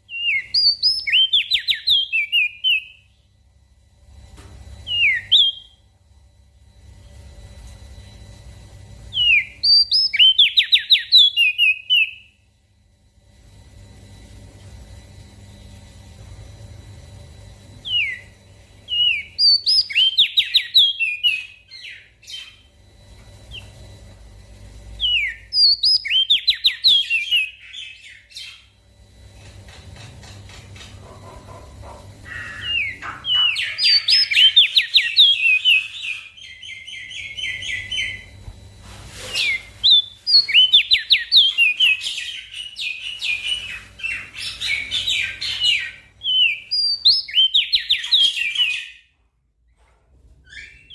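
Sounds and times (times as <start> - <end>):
songbird singing: 0.0 - 3.2, 9.1 - 12.4, 17.8 - 22.8, 25.0 - 28.8, 31.0 - 38.4, 39.4 - 49.0
faint low hum: 0.0 - 50.9.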